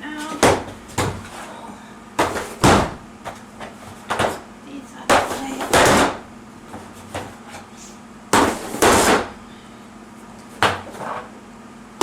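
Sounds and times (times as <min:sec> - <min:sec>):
plastic shelf parts thumping: 0:00.2 - 0:01.5, 0:02.2 - 0:04.4, 0:05.1 - 0:07.4, 0:08.3 - 0:09.4.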